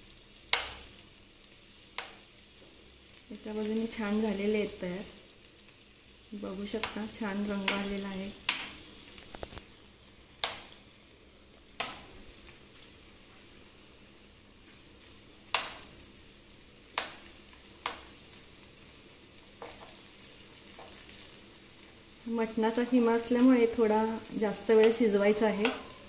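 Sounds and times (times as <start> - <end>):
food sizzling in a frying pan: 0.0 - 26.0
metal spoon clicking on a pan: 0.5 - 0.8, 10.4 - 10.7, 11.8 - 12.1, 15.5 - 15.8.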